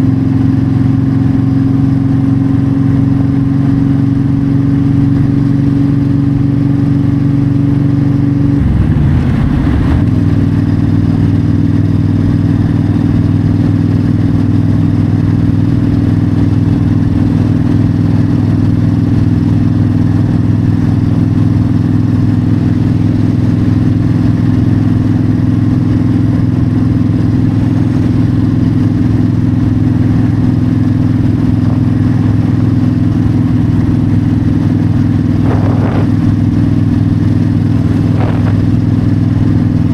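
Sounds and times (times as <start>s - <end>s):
motorcycle engine cruising: 6.3s - 39.9s
wind noise: 8.2s - 12.8s, 31.3s - 39.9s.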